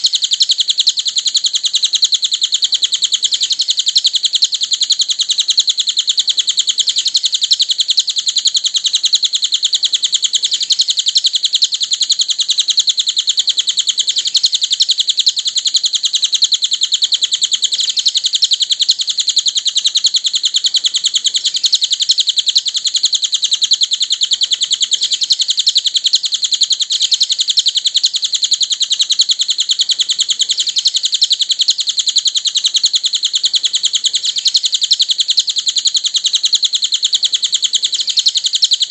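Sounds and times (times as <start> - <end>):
bird chattering chirps: 0.0 - 38.9.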